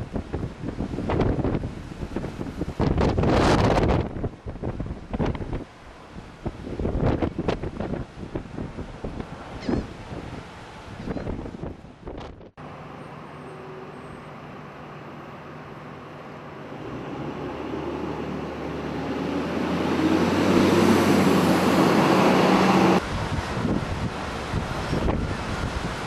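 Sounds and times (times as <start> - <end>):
road traffic: 0.0 - 26.0
heavy vehicle engine running: 12.6 - 26.0.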